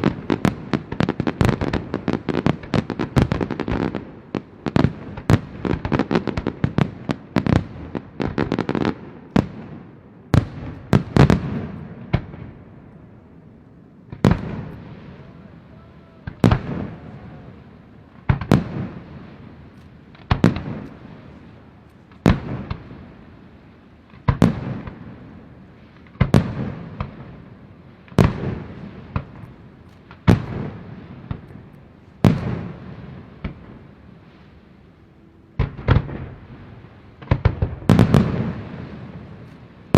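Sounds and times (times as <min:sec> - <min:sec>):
loud firework bangs: 0:00.0 - 0:12.8, 0:14.0 - 0:34.3, 0:35.6 - 0:39.9
fireworks bursting: 0:00.0 - 0:39.9.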